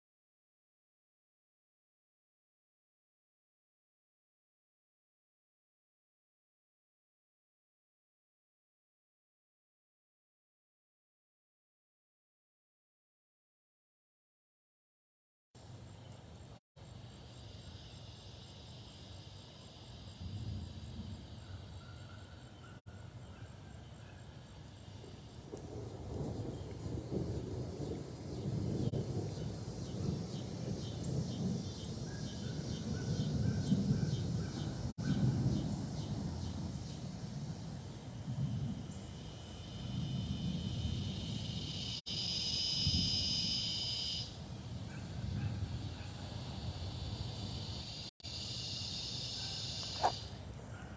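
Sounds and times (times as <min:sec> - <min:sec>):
gusty wind buffeting microphone: 0:25.0 - 0:42.0, 0:44.3 - 0:47.9.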